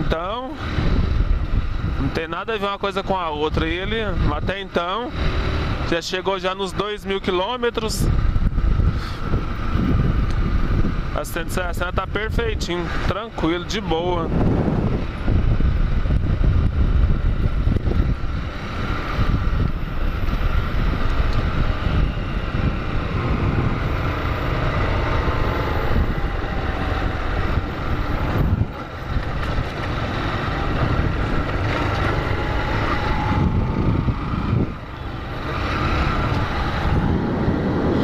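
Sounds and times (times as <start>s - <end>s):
wind noise on microphone: 0.0s - 5.9s, 7.7s - 38.0s
motorcycle engine running: 8.1s - 38.0s.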